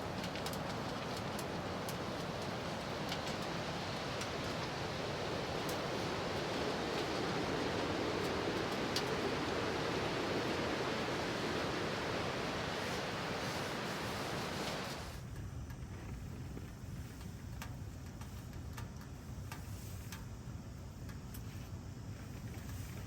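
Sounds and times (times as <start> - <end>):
strong wind against tent: 0.0 - 23.0
faint ticks: 15.2 - 20.4.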